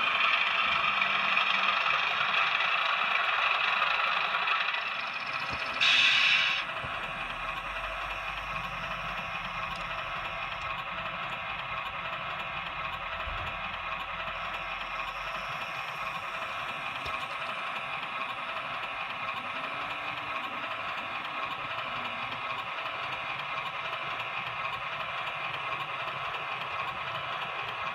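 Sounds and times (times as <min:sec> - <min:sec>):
model train hum: 0:00.0 - 0:27.9.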